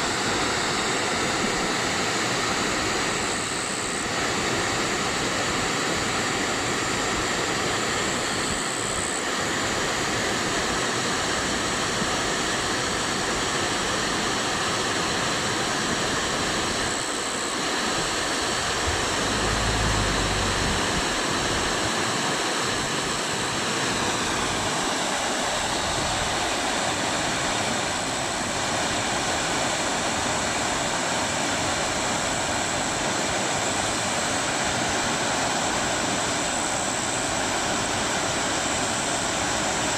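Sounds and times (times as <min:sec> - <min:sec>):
waterfall rushing: 0:17.4 - 0:31.7
brief low rumble: 0:18.6 - 0:21.9.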